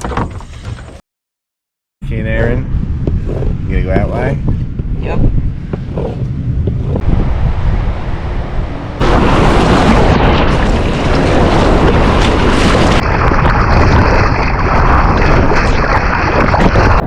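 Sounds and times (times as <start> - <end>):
wind buffeting microphone: 2.1 - 17.0
surf water rushing: 7.1 - 17.0.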